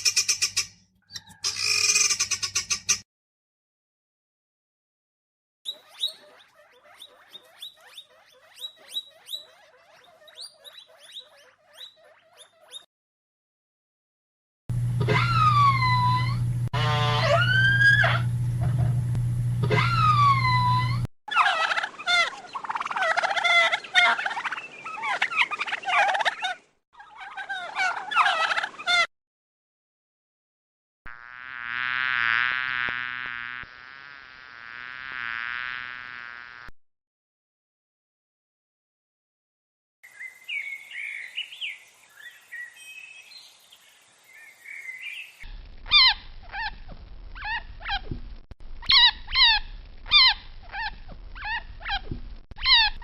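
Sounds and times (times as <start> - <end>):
rapid short animal chirps: 5.7 - 12.9
steady low hum: 14.7 - 21.1
overlapping animal calls: 15.0 - 18.3, 19.6 - 29.1, 45.9 - 48.1, 48.8 - 53.0.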